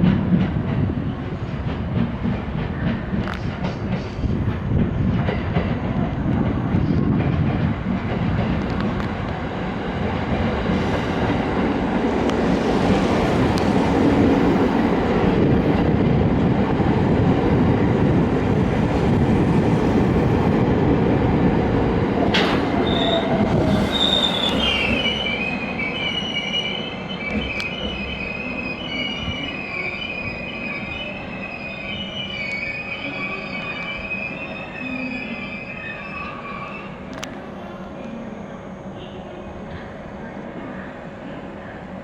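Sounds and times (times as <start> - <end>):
train wheels rumbling on track: 0.0 - 37.4
train wheels squealing: 22.8 - 37.0.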